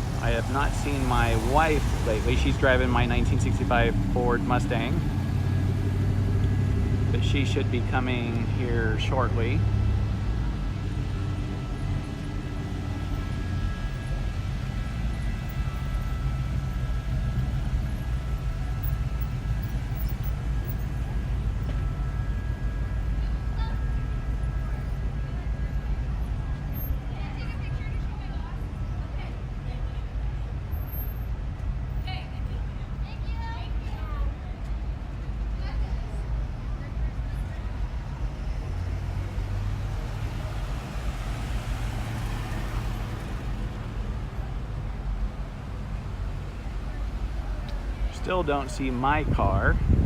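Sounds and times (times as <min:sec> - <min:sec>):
cars driving slowly past: 0:00.0 - 0:50.0
car driving past: 0:38.4 - 0:50.0.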